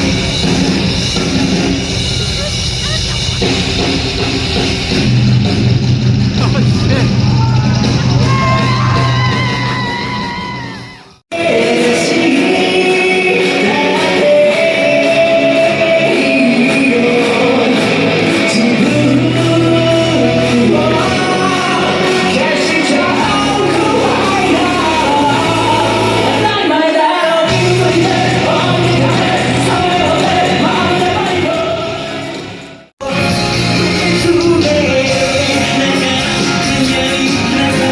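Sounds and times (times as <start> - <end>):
rock band playing: 0.0 - 26.6, 27.5 - 37.9
person singing: 11.3 - 37.9.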